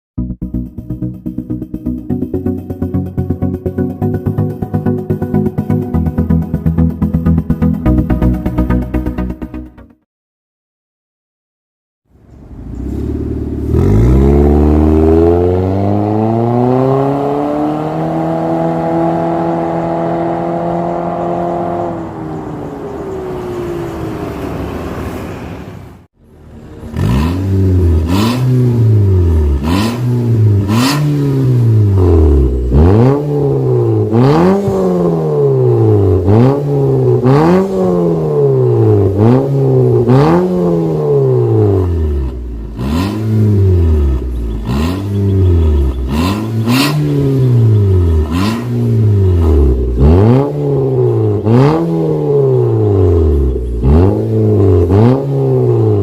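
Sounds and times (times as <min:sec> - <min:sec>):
car engine revving: 0:12.1 - 0:56.0
exhaust crackling: 0:12.2 - 0:56.0.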